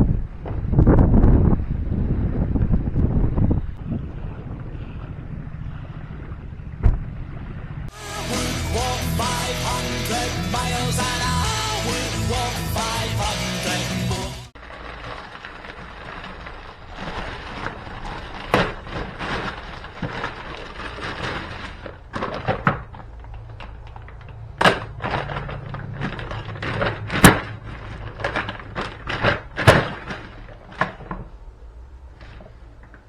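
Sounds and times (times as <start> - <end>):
hard knocks and thuds: 6.8 - 7.1.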